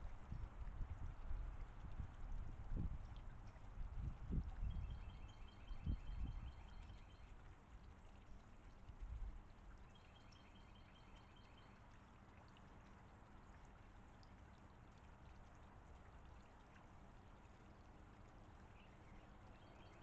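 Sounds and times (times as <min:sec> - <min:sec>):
songbird trilling: 0:19.6 - 0:20.0.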